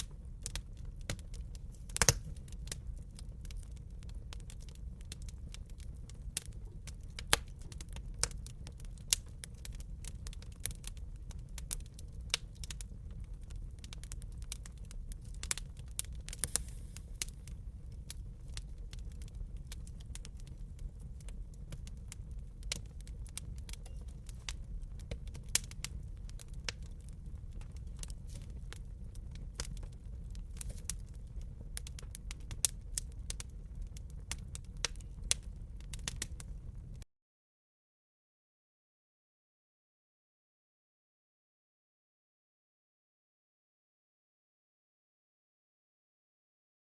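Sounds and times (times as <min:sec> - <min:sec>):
wood fire crackling and popping: 0:00.0 - 0:37.0.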